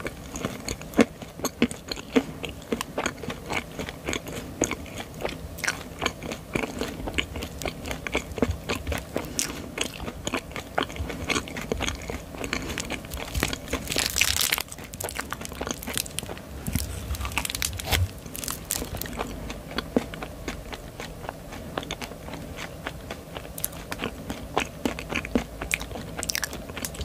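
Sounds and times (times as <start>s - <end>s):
chewing crunchy candy: 0.0s - 27.0s.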